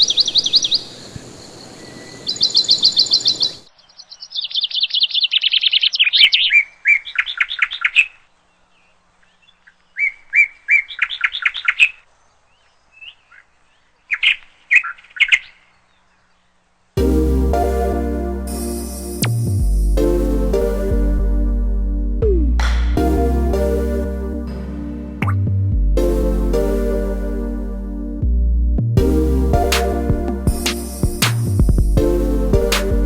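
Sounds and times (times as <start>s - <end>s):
songbird trilling: 0.0s - 8.2s
music: 17.0s - 33.0s.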